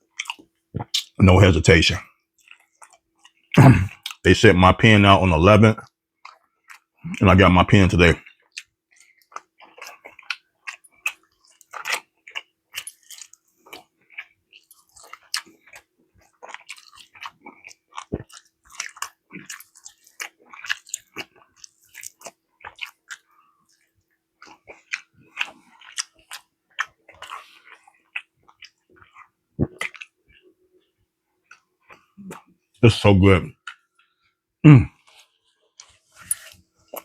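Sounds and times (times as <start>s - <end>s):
person chewing and biting: 0.0s - 1.2s, 2.4s - 4.2s, 6.2s - 7.2s, 8.2s - 30.5s, 31.4s - 32.6s, 35.0s - 37.0s.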